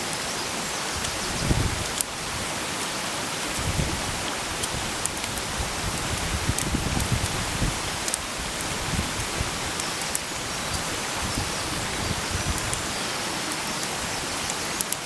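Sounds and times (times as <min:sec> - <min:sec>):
campfire crackles: 0:00.9 - 0:12.9.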